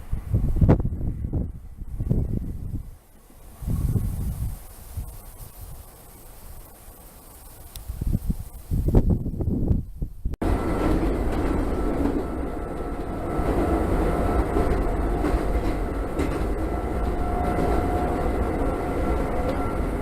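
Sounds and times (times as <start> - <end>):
electric train rail rumble: 0.0 - 9.6, 10.2 - 20.0
gusty rumble: 0.0 - 20.0.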